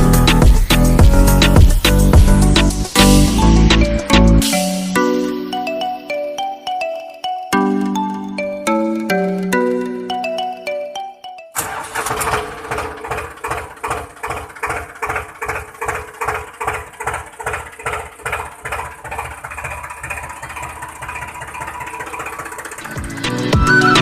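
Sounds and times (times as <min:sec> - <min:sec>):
tractor engine idling: 0:00.0 - 0:05.9, 0:11.6 - 0:24.0.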